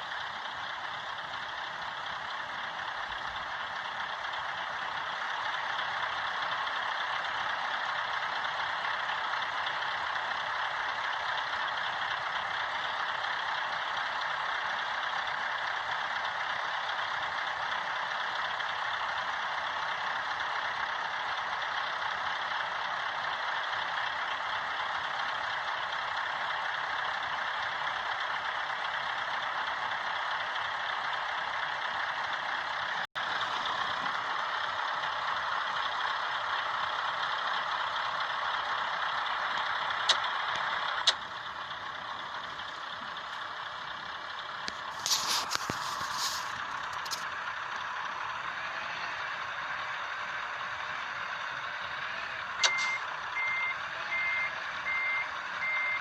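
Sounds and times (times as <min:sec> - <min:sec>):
heavy truck engine running: 0:00.0 - 0:56.0
sharp clicks: 0:39.9 - 0:41.4, 0:52.6 - 0:53.1
reversing alarm beeping: 0:52.6 - 0:56.0.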